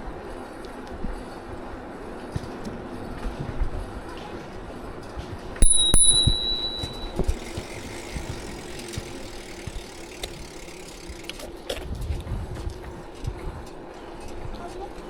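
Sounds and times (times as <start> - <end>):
bicycle riding noise with rattles: 0.0 - 15.0
bicycle bell ringing: 5.6 - 9.7.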